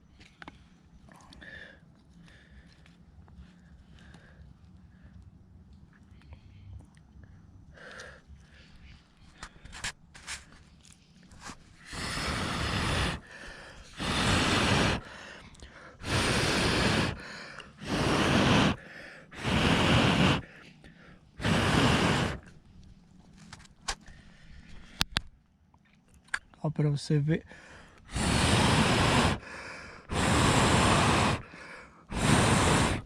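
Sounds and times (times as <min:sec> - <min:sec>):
person blowing on embers: 0:11.3 - 0:22.6, 0:27.9 - 0:33.0.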